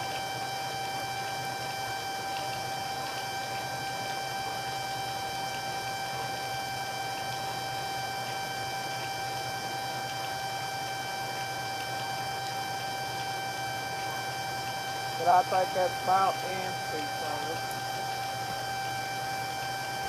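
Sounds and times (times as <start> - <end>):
high-pitched hum: 0.0 - 20.0
constant hiss: 15.0 - 18.7.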